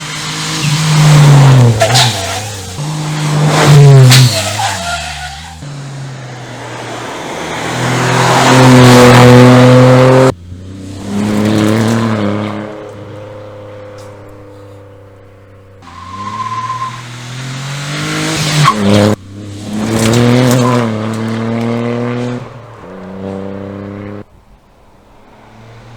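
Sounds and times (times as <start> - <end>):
rally car engine revving: 0.0 - 24.3.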